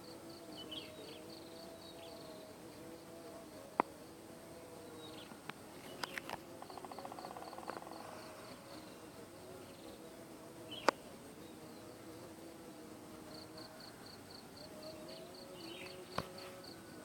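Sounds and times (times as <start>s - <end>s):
faint steady hum: 0.0s - 17.0s
high insect chirps: 5.0s - 11.1s.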